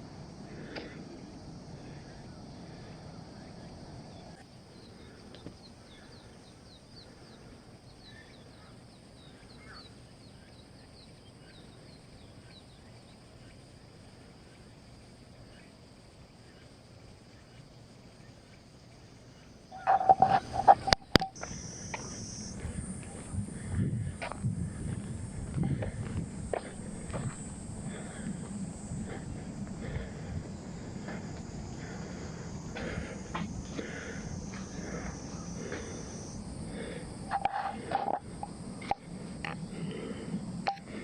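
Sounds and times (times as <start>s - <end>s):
steady outdoor hiss: 0.0s - 41.0s
small bird chirping: 16.4s - 22.6s.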